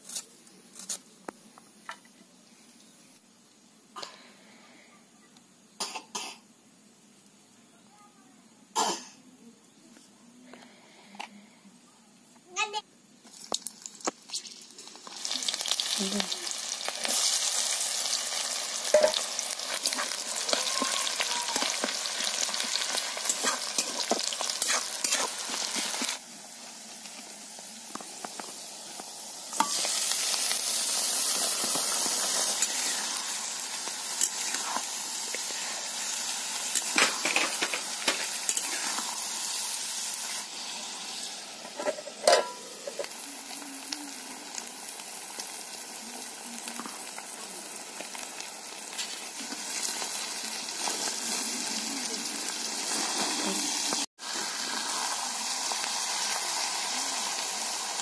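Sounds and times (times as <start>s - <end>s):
hot oil sizzling and spitting: 12.6s - 58.0s.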